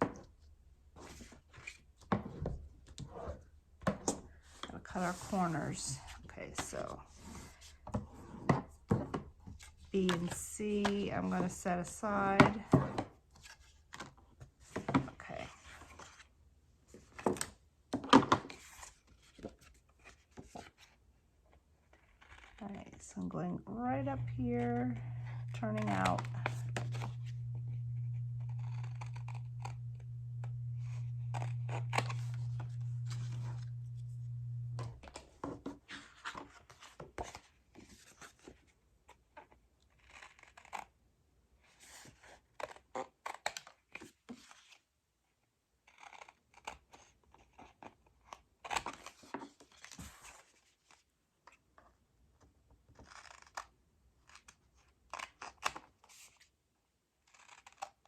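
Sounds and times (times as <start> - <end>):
steady low hum: 22.6 - 35.1
scissors snipping cardstock: 23.8 - 34.9.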